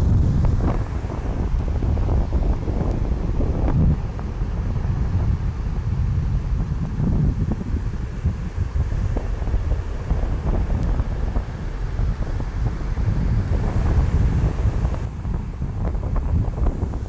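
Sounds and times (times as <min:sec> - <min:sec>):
ocean surf washing on beach: 0:00.0 - 0:17.0
wind buffeting microphone: 0:00.0 - 0:17.0.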